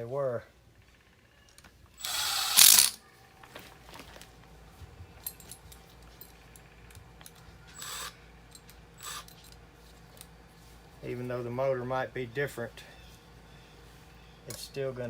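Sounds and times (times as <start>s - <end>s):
metal parts clicking and clinking: 1.5s - 3.0s, 5.2s - 10.3s.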